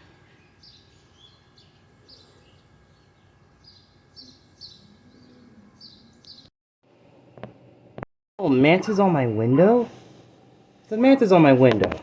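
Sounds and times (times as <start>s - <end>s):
small birds chirping: 0.0s - 6.5s
outdoor background hiss: 0.0s - 12.0s.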